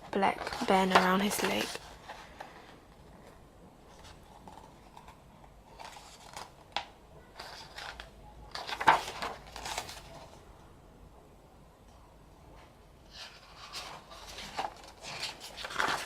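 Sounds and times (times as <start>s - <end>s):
paper pages rustling: 0.0s - 3.2s, 3.9s - 10.4s, 13.1s - 16.0s.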